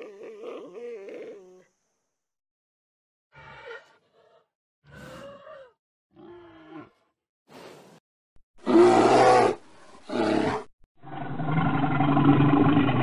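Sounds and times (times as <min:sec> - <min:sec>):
bear roar: 0:08.6 - 0:13.0.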